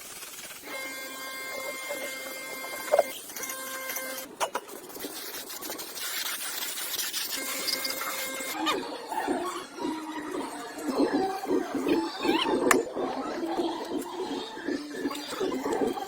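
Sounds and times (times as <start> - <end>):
hiss: 0.0 - 0.7, 4.7 - 7.4
small electric motor whining: 0.6 - 12.9.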